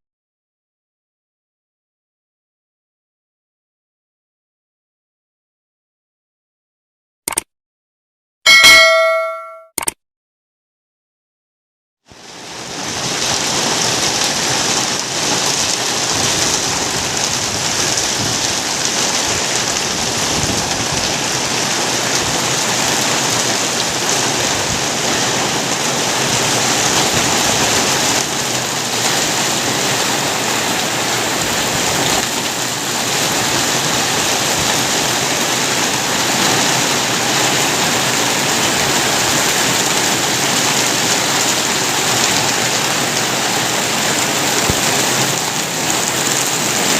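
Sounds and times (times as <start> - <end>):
rain falling steadily: 12.1 - 46.9.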